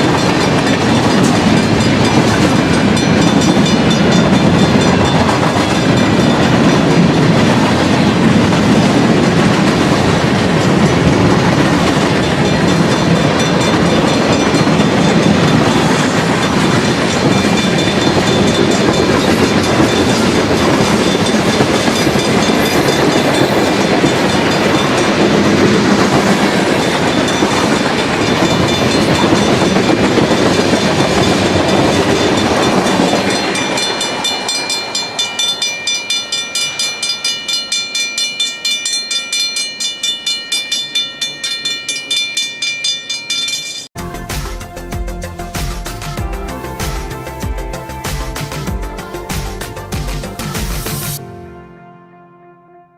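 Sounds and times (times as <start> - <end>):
wheels clattering over rail joints: 0.0 - 36.4
freight train rumbling: 0.0 - 37.7, 43.9 - 51.6.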